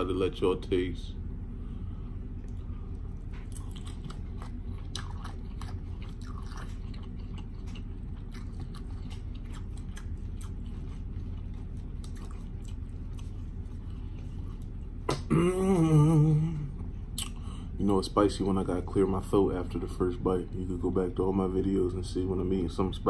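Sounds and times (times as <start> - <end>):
steady low hum: 0.0 - 23.0
man chewing food: 1.5 - 17.8.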